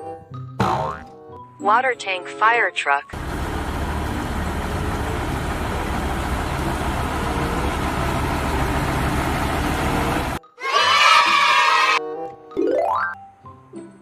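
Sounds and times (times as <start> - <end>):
fire truck engine idling: 3.2 - 10.4.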